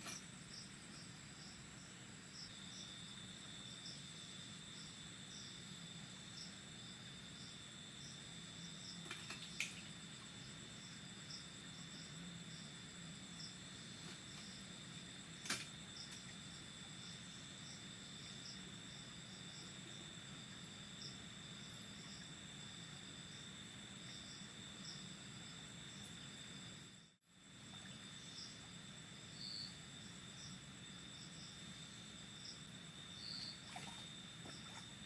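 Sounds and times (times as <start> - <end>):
crickets trilling: 0.0 - 35.0
insect chirping in pulses: 9.6 - 35.0.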